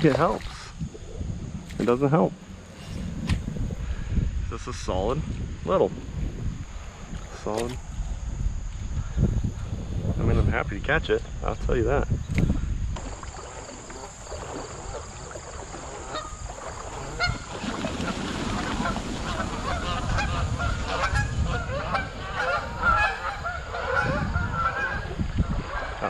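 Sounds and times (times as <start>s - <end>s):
geese honking: 15.8s - 26.0s.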